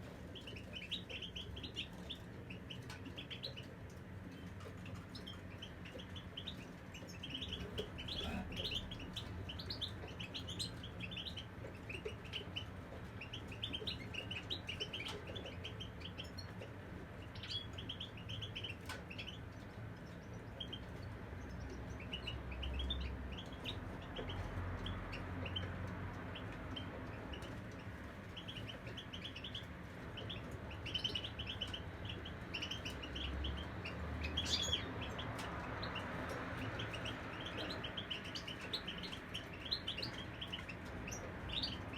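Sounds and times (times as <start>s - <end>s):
goldfinches twittering and singing: 30.2s - 41.9s.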